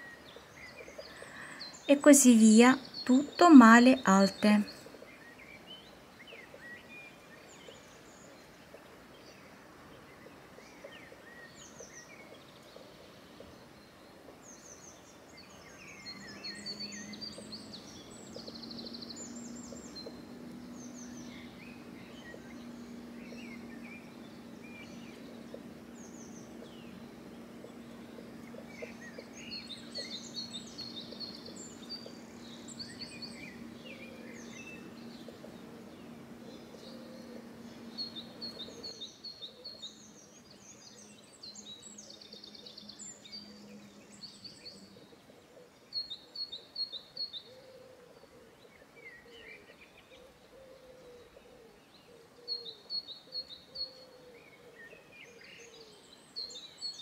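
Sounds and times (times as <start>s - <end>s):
birds chirping: 0.0s - 57.0s
steady low hum: 19.0s - 38.9s.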